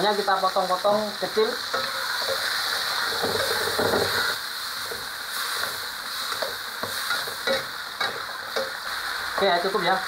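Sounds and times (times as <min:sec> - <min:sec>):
food sizzling in oil: 0:00.0 - 0:10.0
metal spatula scraping a pan: 0:01.7 - 0:08.8.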